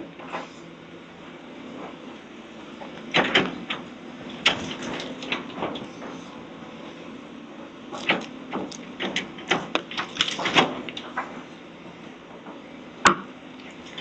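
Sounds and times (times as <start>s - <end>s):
machine hum: 0.0s - 14.0s
debris cracking and clattering: 8.0s - 11.3s.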